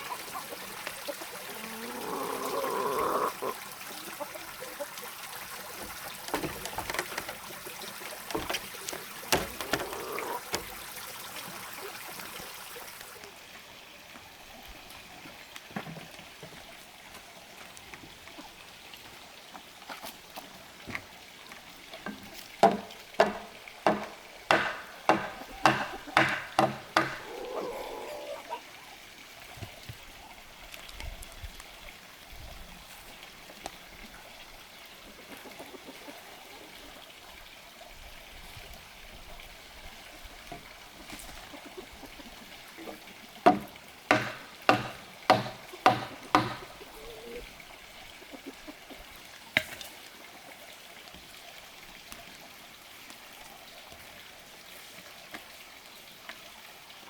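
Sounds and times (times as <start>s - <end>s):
sharp blows on wood: 22.6s - 27.3s, 43.5s - 46.7s.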